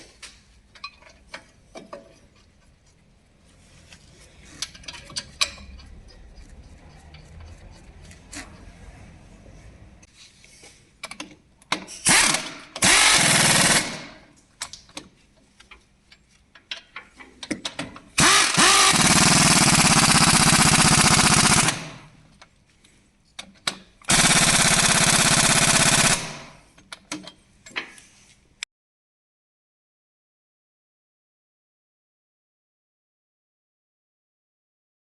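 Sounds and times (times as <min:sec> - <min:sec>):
metallic clicks and knocks: 0:04.6 - 0:08.7, 0:26.7 - 0:27.9.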